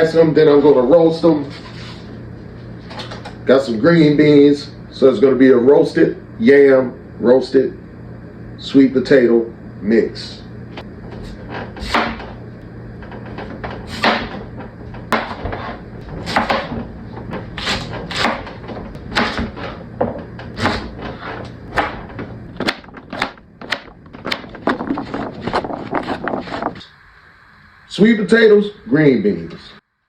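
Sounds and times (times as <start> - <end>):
knife chopping on cutting board: 11.8 - 12.3, 13.8 - 14.4, 15.1 - 26.6.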